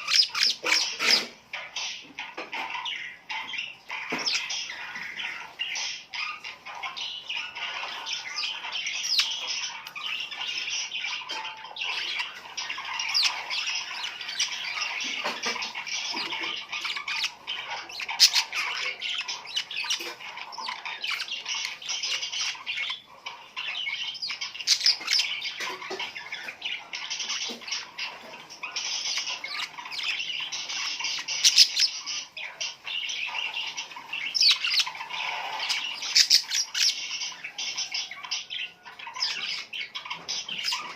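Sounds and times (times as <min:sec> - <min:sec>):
flock of birds chirping: 0:00.0 - 0:40.9.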